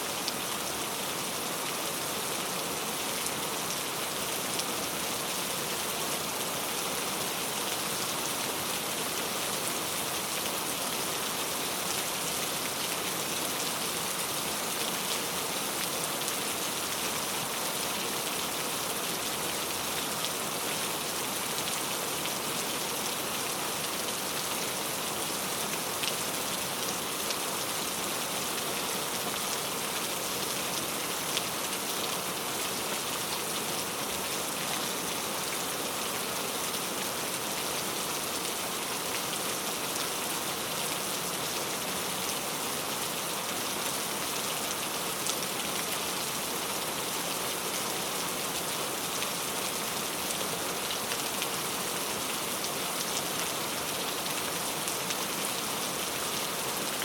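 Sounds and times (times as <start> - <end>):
steady rainfall: 0.0 - 57.0.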